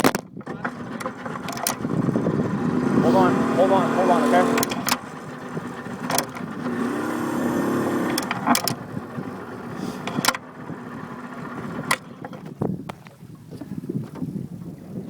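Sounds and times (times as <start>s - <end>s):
boat motor running: 0.4s - 13.2s
sharp knocks or clicks: 6.0s - 6.9s.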